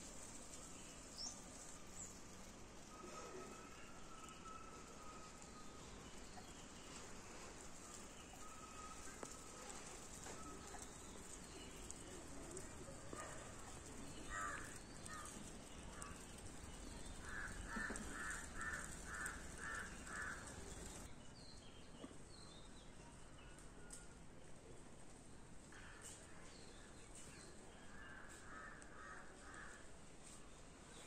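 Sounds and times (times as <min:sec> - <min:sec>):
bird harsh calls: 0:17.1 - 0:21.1.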